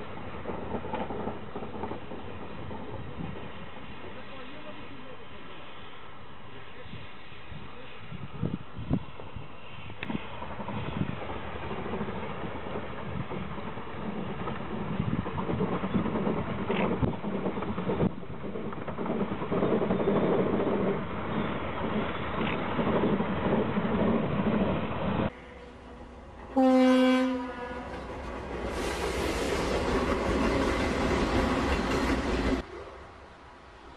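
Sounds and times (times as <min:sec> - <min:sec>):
locomotive horn blast: 0:25.3 - 0:28.1.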